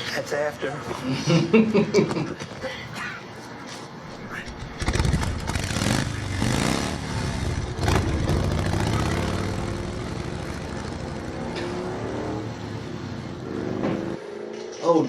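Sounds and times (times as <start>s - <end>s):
motorcycle engines revving: 4.6s - 14.3s.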